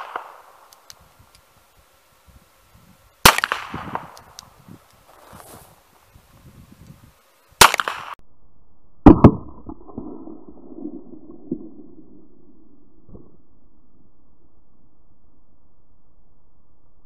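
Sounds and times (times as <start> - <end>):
revolver gunshots: 3.2 - 4.1, 7.6 - 8.2.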